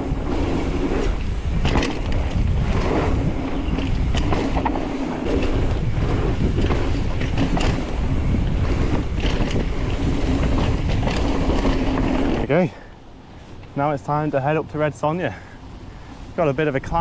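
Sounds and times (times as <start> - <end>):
bike rattles and knocks: 0.0 - 12.8
bike tyres on dirt: 0.0 - 17.0
wind buffeting microphone: 0.0 - 17.0.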